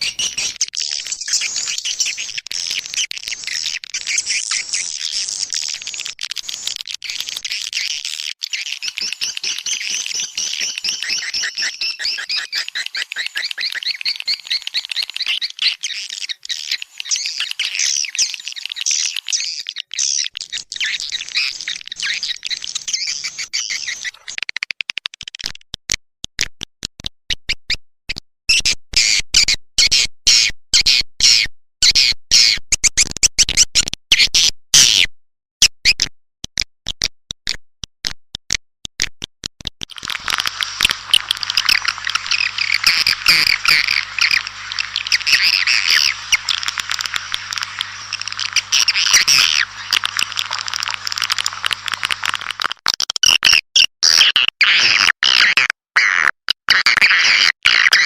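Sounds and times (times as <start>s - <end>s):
swiftlets chirping: 39.9s - 52.6s.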